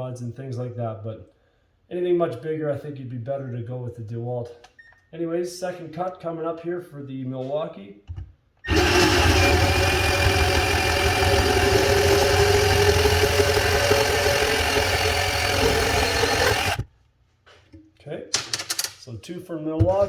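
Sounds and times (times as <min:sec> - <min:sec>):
cordless bandsaw cutting: 0:08.7 - 0:16.9.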